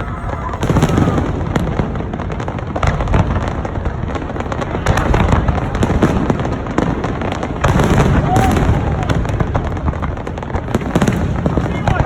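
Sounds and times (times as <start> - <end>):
fireworks booming: 0.0 - 12.0
fireworks crackling: 0.0 - 12.0.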